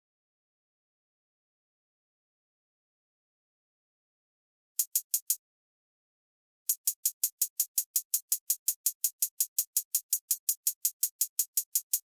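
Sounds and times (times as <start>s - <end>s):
drum machine hi-hat: 4.8s - 5.4s, 6.7s - 12.0s.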